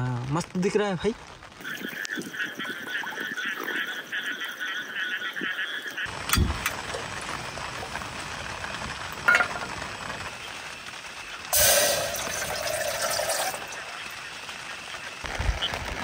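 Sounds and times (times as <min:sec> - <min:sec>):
rain falling: 0:00.0 - 0:16.0
repeated animal calls: 0:01.6 - 0:06.1.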